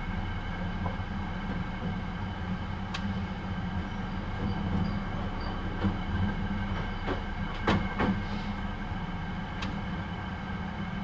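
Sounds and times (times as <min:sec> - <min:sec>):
train wheels rumbling on rail: 0:00.0 - 0:11.0
wheels clacking over rail joints: 0:03.8 - 0:08.5.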